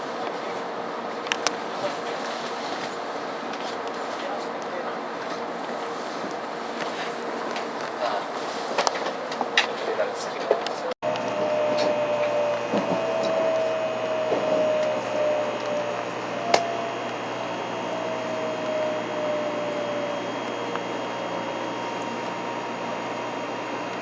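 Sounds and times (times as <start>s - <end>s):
train running noise: 0.0s - 24.0s
motor whine: 11.0s - 24.0s.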